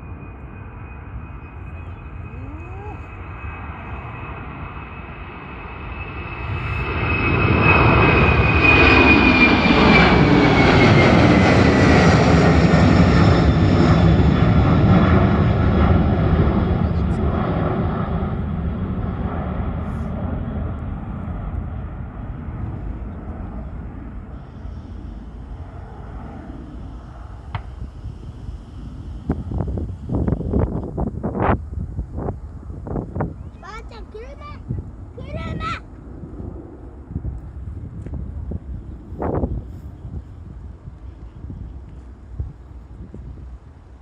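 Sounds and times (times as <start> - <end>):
high whine sliding downward: 0.0 - 14.2
airplane passing overhead: 0.0 - 44.0.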